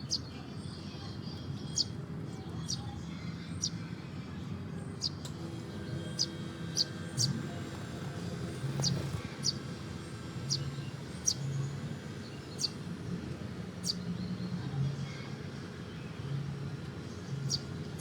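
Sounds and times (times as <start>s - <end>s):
small bird chirping: 6.0s - 7.7s, 8.5s - 12.9s, 13.8s - 14.6s, 17.3s - 18.0s.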